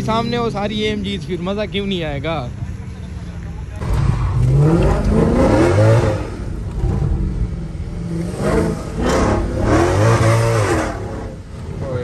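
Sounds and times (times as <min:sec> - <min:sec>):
car engine revving hard: 0:03.8 - 0:12.0.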